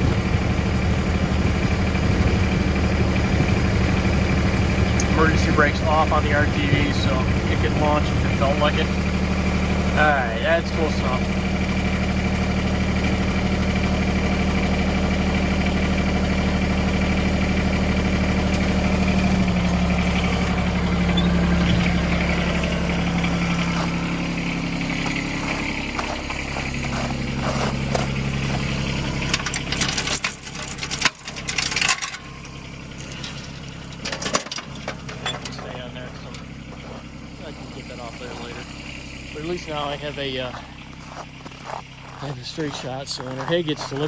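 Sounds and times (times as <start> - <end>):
tractor engine running: 0.0 - 44.0
metallic clinks and knocks: 29.3 - 36.4.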